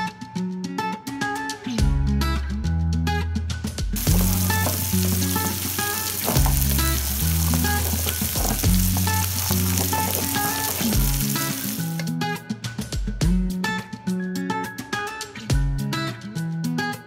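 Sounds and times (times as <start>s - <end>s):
chicken sizzling in frying pan: 4.0s - 12.0s.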